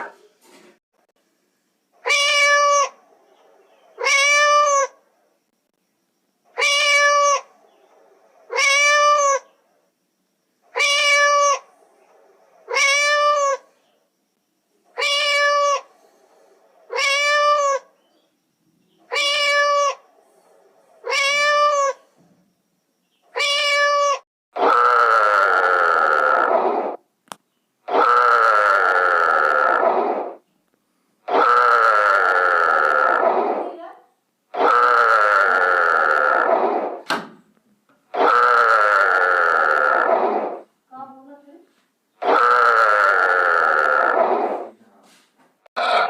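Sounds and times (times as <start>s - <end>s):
cat meowing: 2.0s - 3.0s, 4.0s - 5.0s, 6.6s - 7.5s, 8.5s - 9.5s, 10.7s - 11.7s, 12.7s - 13.6s, 15.0s - 15.9s, 16.9s - 17.9s, 19.1s - 20.0s, 21.0s - 22.0s, 23.3s - 24.2s.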